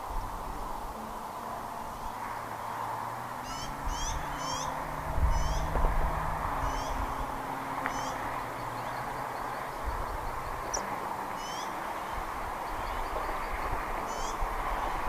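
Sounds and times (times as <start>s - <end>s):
steady background hiss: 0.0s - 15.0s
bird chirping calls: 2.6s - 15.0s.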